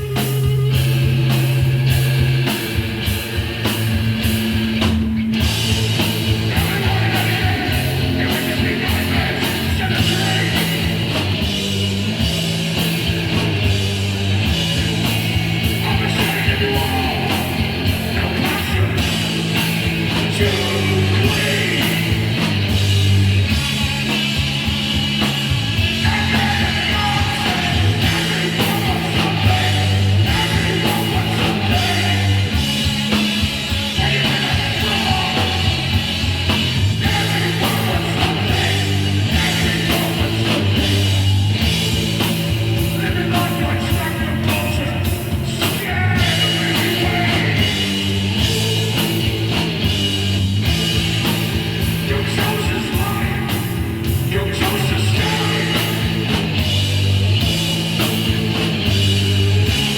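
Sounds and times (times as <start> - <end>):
bass guitar: 0.0 - 59.9
drums: 0.0 - 59.9
electric guitar: 0.0 - 59.9
person singing: 6.3 - 11.2, 15.6 - 22.4, 26.0 - 32.7, 33.9 - 36.0, 37.0 - 41.0, 42.8 - 49.6, 52.0 - 56.3.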